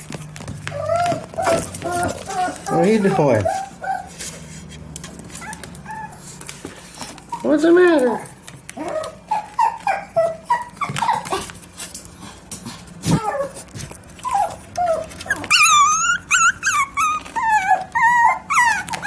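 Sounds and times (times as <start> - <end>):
dog whining: 0.5 - 4.2, 5.4 - 6.4, 8.8 - 11.6, 13.0 - 19.0.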